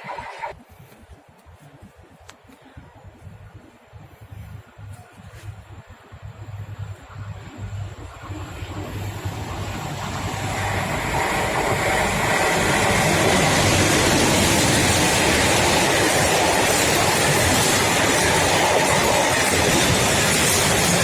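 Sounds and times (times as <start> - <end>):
freight train passing on rails: 4.3 - 21.0.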